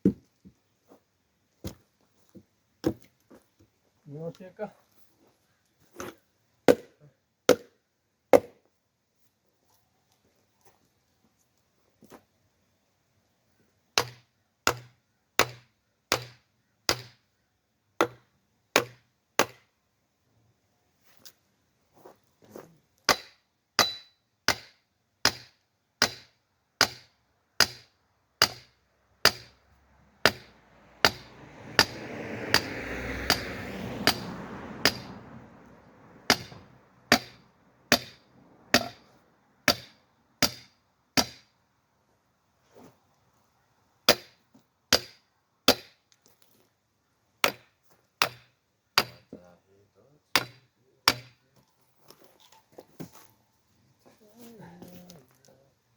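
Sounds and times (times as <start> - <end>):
tool striking log: 0.0 - 0.2, 6.7 - 8.6, 14.0 - 17.2, 18.0 - 19.7, 23.1 - 29.6, 30.2 - 35.1, 36.3 - 41.5, 44.1 - 46.0, 47.4 - 49.4, 50.4 - 51.4.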